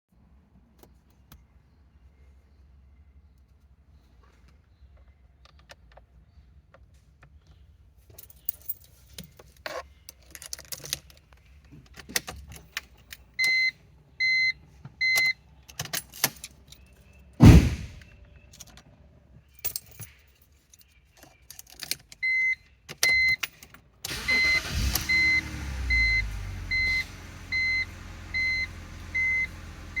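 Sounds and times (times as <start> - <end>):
car warning chime beeping: 13.4 - 15.4, 24.1 - 30.0
heavy thud: 17.4 - 18.1.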